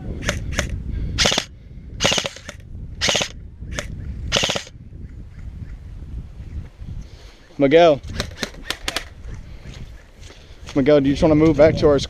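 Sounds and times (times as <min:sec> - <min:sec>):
airsoft guns firing bursts: 0:01.2 - 0:03.3, 0:04.4 - 0:04.7.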